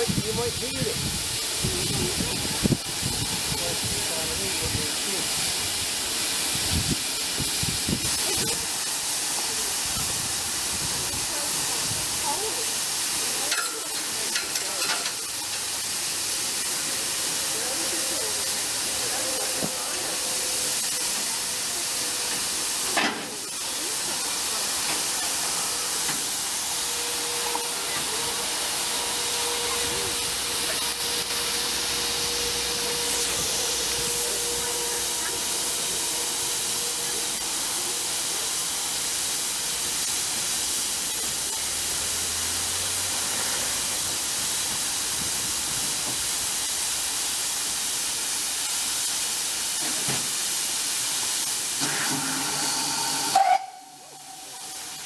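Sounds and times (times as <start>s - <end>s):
steam hissing from locomotive: 0.0s - 55.0s
water rushing into tank: 51.7s - 55.0s.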